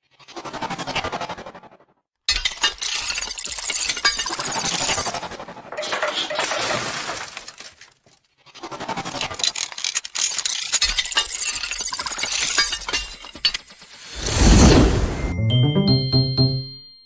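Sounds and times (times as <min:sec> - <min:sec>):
shattering with sharp clicks: 0:09.4 - 0:14.1.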